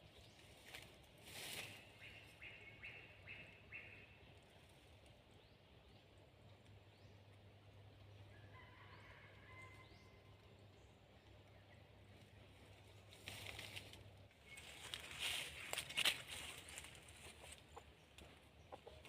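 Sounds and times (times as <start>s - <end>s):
distant junglefowl crowing: 8.3s - 10.4s.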